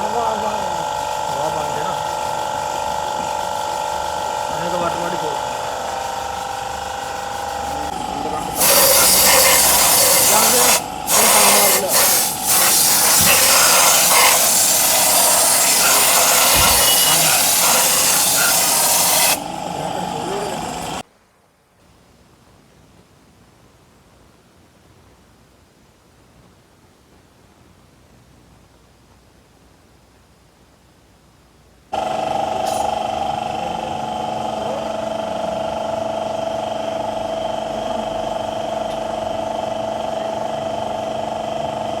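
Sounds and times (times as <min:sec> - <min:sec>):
loud steady hiss: 0:00.0 - 0:21.0.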